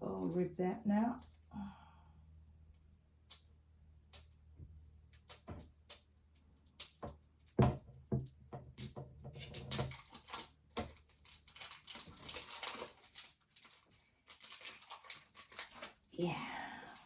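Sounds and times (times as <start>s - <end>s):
plastic packaging crinkling: 9.4s - 17.0s.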